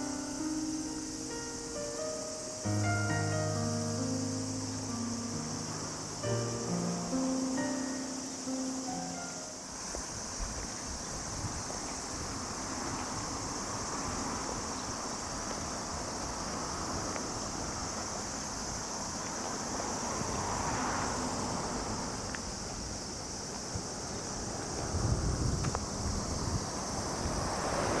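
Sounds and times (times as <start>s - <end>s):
insects chorus: 0.0s - 28.0s
wind buffeting microphone: 9.5s - 28.0s.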